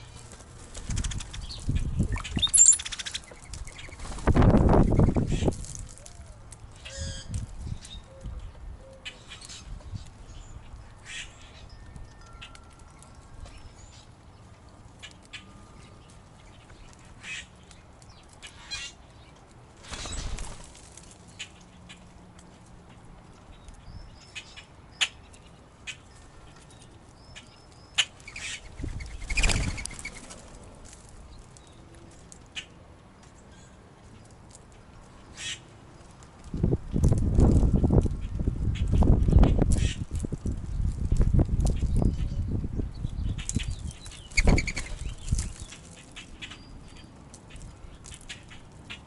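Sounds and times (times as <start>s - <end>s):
birds' wings flapping: 0.1s - 6.1s, 19.8s - 21.3s, 28.8s - 30.9s
short high chirps: 2.1s - 2.8s.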